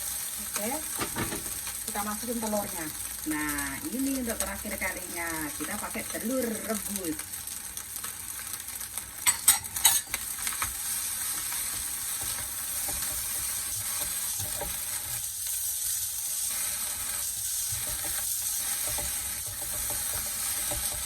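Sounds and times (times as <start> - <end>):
rice sizzling in oil: 0.0 - 21.0
stirring scrapes in pan: 9.2 - 21.0.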